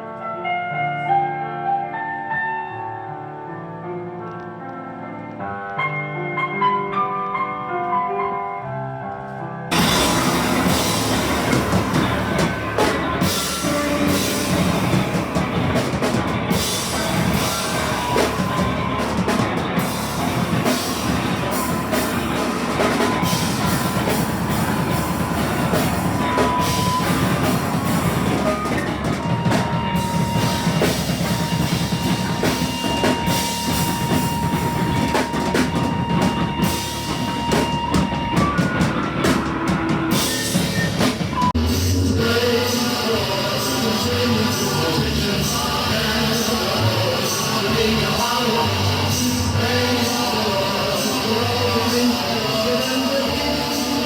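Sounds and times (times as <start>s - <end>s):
keyboard notes: 0.0s - 54.0s
steady high tone: 9.7s - 39.3s
distorted noise: 9.7s - 54.0s
loud drum kit: 9.7s - 54.0s.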